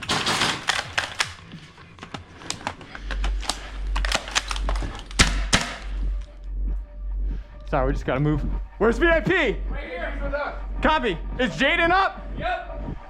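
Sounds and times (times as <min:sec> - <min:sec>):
deep bass background music: 0:00.0 - 0:13.0
airsoft rifle shots: 0:04.1 - 0:05.9.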